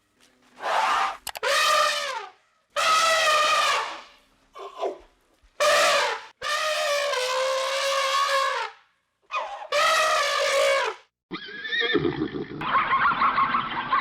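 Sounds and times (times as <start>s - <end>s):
elephant trumpeting: 0.6s - 4.1s, 9.3s - 11.0s.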